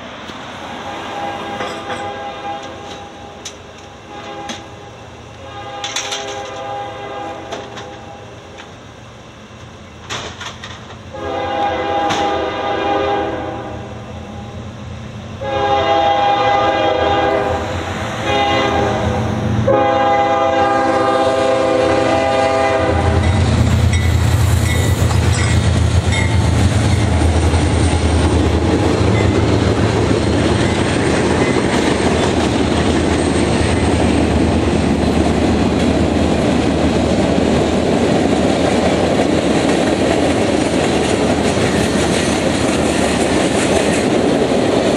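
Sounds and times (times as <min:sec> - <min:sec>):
diesel locomotives rumbling: 0:00.0 - 0:44.9
freight cars rolling on rails: 0:00.0 - 0:44.9
locomotive horn chord: 0:00.8 - 0:03.4, 0:04.0 - 0:04.8, 0:05.4 - 0:08.3, 0:11.1 - 0:14.5, 0:15.4 - 0:23.6.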